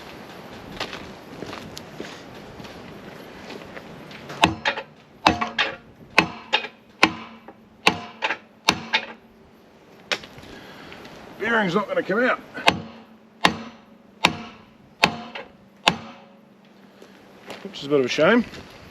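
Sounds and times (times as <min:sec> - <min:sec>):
hammer striking metal: 0:04.4 - 0:09.2, 0:12.6 - 0:16.5.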